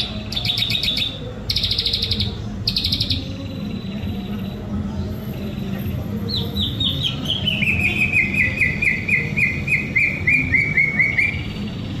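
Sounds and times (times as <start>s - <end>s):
bird singing slurred whistles: 6.3s - 11.5s.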